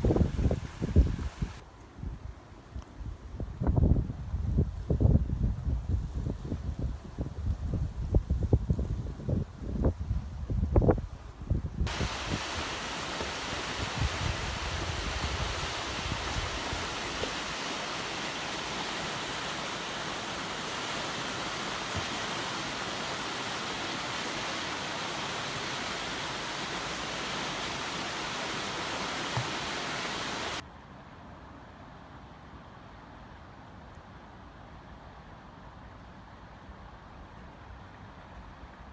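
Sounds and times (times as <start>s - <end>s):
floodwater rushing: 0.0s - 1.6s, 11.9s - 30.6s.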